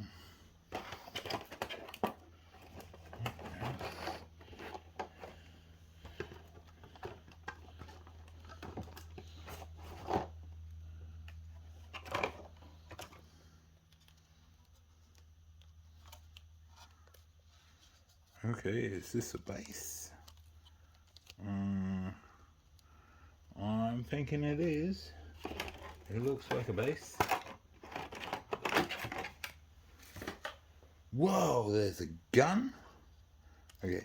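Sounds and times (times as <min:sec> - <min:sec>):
packaging rustling and scraping: 0:00.7 - 0:18.4, 0:24.2 - 0:30.6.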